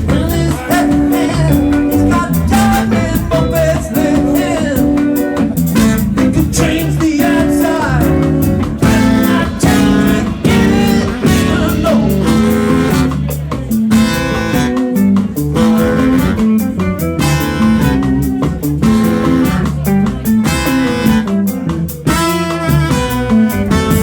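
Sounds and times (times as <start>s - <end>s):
band playing guitar-led music: 0.0s - 24.0s
drum hits: 0.0s - 24.0s.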